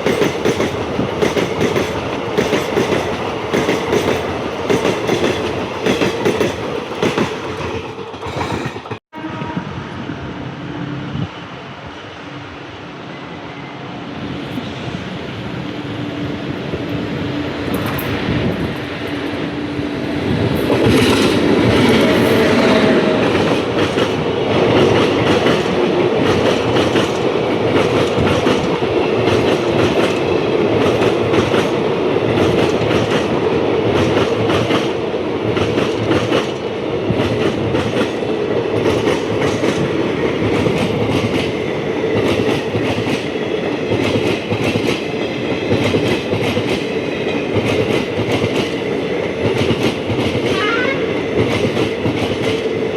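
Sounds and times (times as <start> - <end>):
train wheels clattering over rails: 0.0 - 9.0, 20.3 - 52.9.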